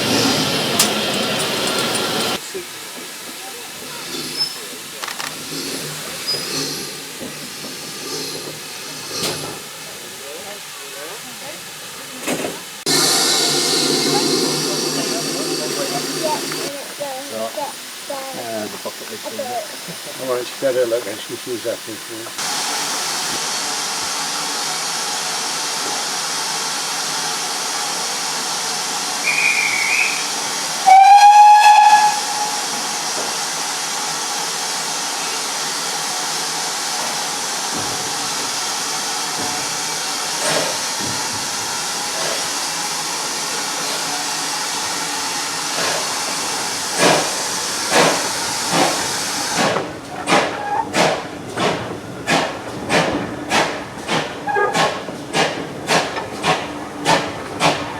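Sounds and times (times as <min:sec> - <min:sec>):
steam locomotive hissing: 0:00.0 - 0:57.9
steam exhaust beats: 0:12.7 - 0:35.0, 0:36.0 - 0:57.9
high whistle: 0:29.2 - 0:30.3
locomotive whistle: 0:29.2 - 0:32.9.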